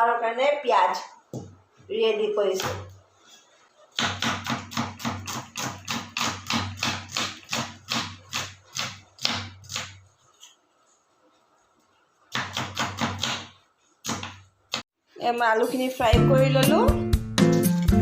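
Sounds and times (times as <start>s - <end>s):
knife chopping onions on board: 4.0s - 10.0s, 12.3s - 14.8s.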